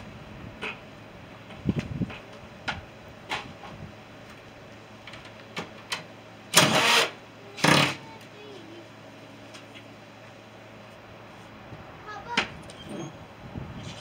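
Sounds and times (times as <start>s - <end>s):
loud bursts of noise: 6.5s - 8.1s.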